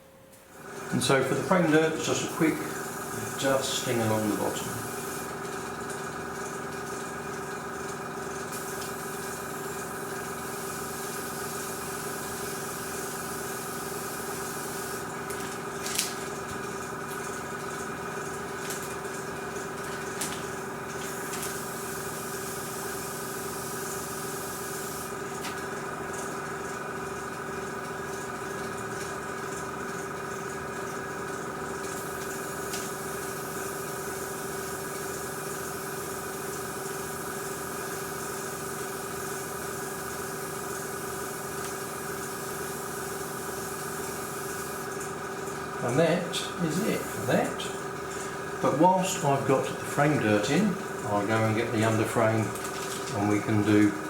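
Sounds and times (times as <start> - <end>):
compressor humming: 0.0 - 54.0
airbrush hissing: 2.2 - 5.3, 8.5 - 15.1, 21.0 - 25.1, 46.6 - 47.7.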